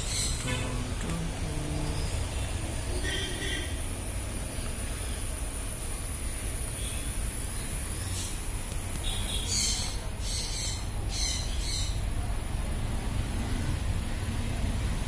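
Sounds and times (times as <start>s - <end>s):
small bird chirping: 0.0s - 0.6s, 9.0s - 12.0s
steady low hum: 0.0s - 9.0s.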